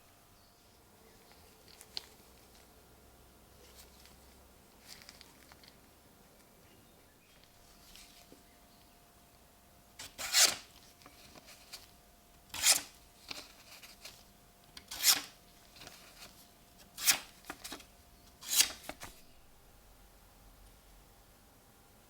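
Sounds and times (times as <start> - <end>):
knife blade scraping: 10.0 - 10.6, 12.5 - 13.0, 14.9 - 15.4, 17.0 - 17.3, 18.4 - 18.9.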